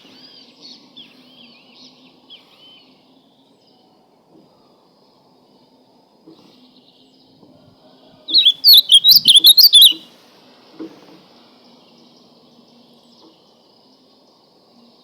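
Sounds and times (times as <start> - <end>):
bird singing warbled song: 8.3 - 10.0.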